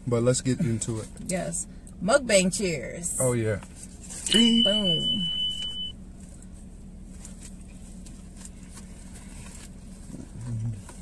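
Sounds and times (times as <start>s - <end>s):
steady low hum: 0.0s - 11.0s
high steady beep: 4.3s - 5.9s
people chewing food: 8.7s - 11.0s.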